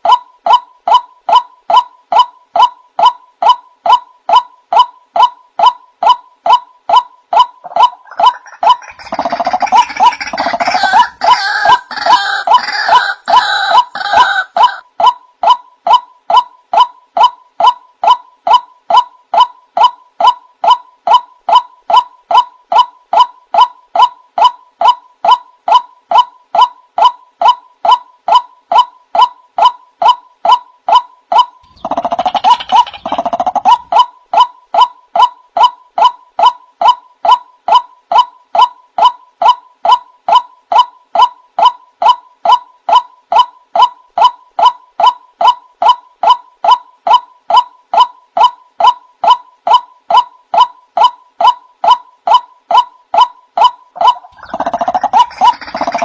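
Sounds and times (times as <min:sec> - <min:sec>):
rough gurgling bird calls: 0:07.6 - 0:14.8, 0:31.6 - 0:34.0, 0:54.0 - 0:56.0.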